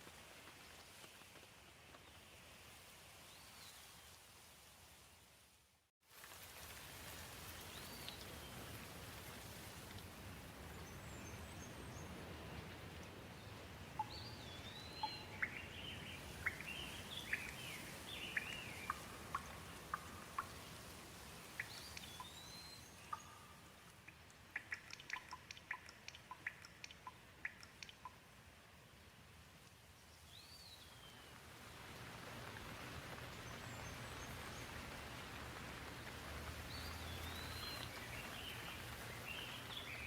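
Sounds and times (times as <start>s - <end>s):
gentle rain hiss: 0.0s - 40.0s
quick sharp ticks: 24.0s - 28.2s.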